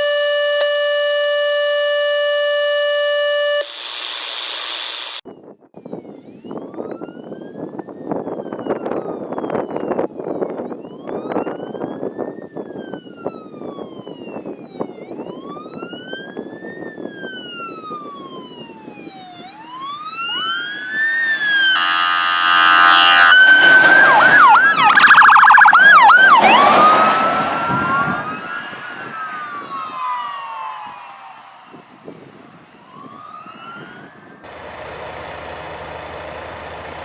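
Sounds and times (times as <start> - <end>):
wailing emergency siren: 0.0 - 3.7, 5.8 - 34.5
yelping siren sweeps: 0.0 - 3.7, 6.0 - 34.4
vehicle horn blast: 21.6 - 24.6.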